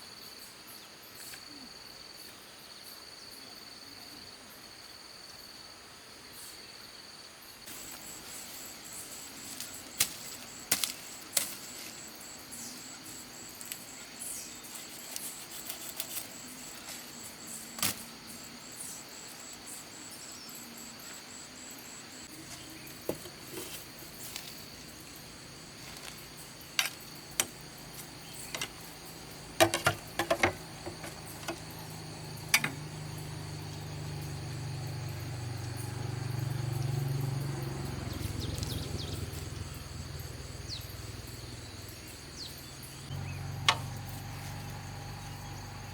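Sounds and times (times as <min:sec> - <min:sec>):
insects chirring: 0:00.0 - 0:45.9
sharp clicks and knocks: 0:29.6 - 0:31.6, 0:32.5 - 0:32.8.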